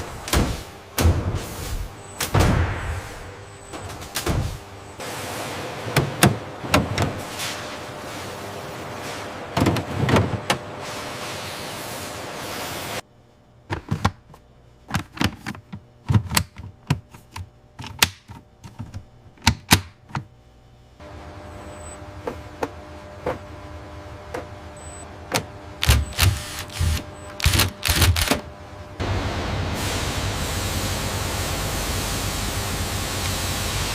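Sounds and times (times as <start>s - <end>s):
low machine hum: 0.0s - 33.9s
sharp mechanical clicks and clacks: 25.8s - 28.4s.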